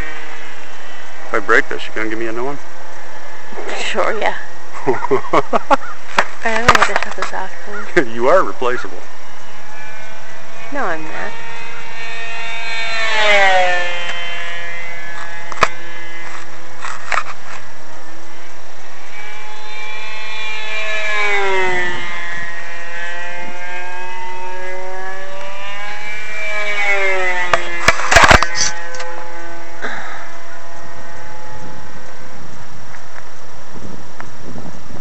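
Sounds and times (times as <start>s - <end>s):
model plane motor whine: 0.0s - 35.0s
sharp click: 27.5s - 29.2s.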